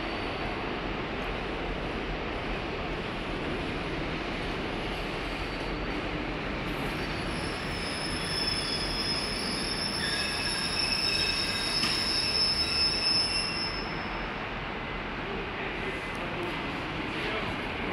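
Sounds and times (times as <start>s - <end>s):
train low rumble: 0.0s - 9.8s, 13.8s - 17.9s
train brakes squealing: 5.2s - 6.1s, 6.7s - 14.4s.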